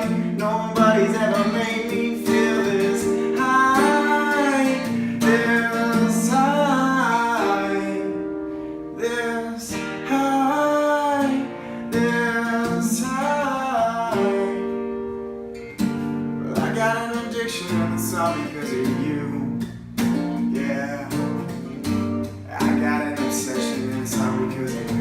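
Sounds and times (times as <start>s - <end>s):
person singing: 0.0s - 14.8s, 20.5s - 25.0s
acoustic guitar strummed: 0.0s - 25.0s.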